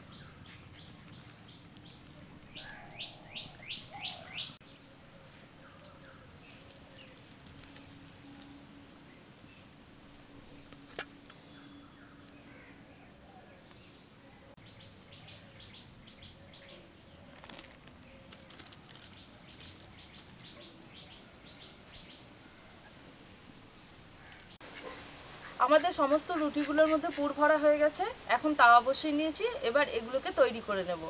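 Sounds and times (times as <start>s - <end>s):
bird chirping: 0.0s - 9.7s, 10.5s - 22.8s.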